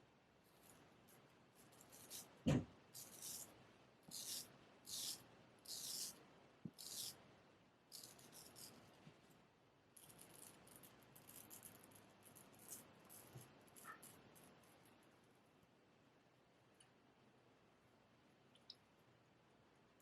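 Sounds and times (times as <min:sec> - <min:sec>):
razor scraping stubble: 0:03.0 - 0:03.5, 0:04.1 - 0:07.2, 0:07.9 - 0:08.8.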